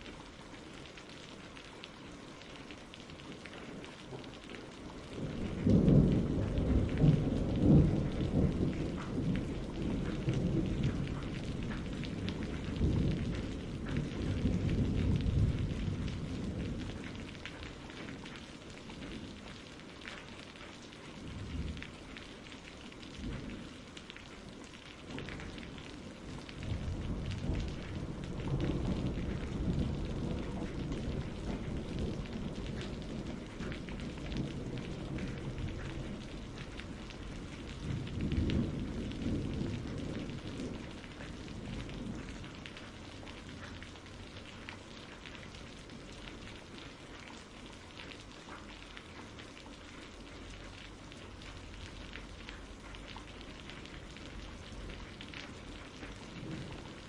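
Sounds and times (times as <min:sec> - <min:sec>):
steady rain: 0:00.0 - 0:57.0
rolling thunder: 0:05.1 - 0:18.3, 0:25.1 - 0:44.7, 0:53.6 - 0:57.0.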